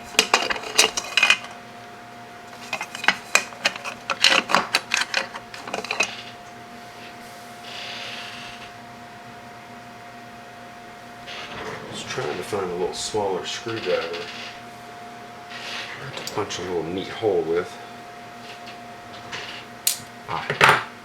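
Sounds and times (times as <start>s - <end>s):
small metal tools clattering: 0.0s - 1.6s, 2.5s - 6.4s
faint steady hum: 0.0s - 21.0s.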